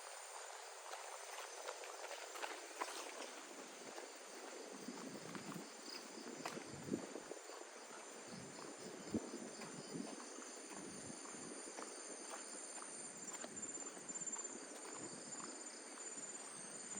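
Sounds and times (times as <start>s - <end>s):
insects chirping: 0.0s - 16.9s.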